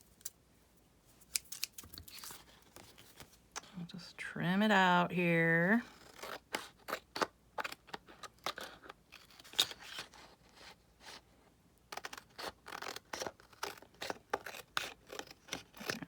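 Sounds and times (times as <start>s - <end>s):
scissors cutting paper: 1.3s - 3.7s, 11.9s - 16.0s.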